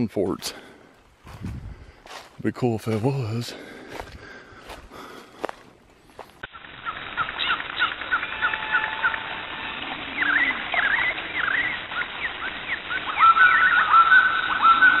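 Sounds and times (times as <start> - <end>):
birds chirping and calling: 6.6 - 15.0.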